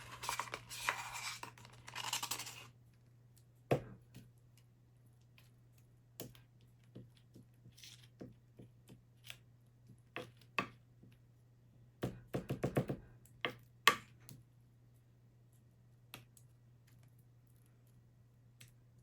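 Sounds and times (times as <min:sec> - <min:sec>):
small objects clicking and knocking: 0:00.0 - 0:02.8.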